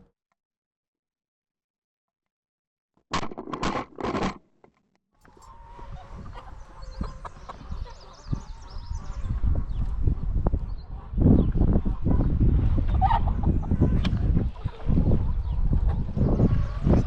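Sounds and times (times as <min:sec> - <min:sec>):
chickens clucking and calling: 0:05.2 - 0:17.0.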